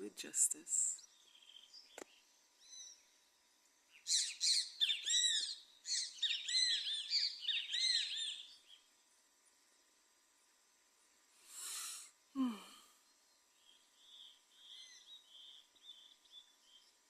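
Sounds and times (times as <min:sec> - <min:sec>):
birds singing: 0:00.8 - 0:08.9, 0:13.0 - 0:17.0.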